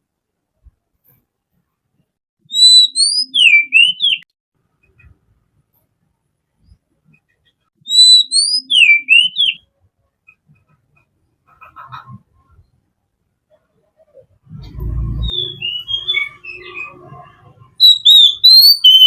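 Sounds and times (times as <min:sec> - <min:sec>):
bird singing whistled notes: 0:02.5 - 0:04.3, 0:07.8 - 0:09.6, 0:15.1 - 0:17.1, 0:17.8 - 0:19.0.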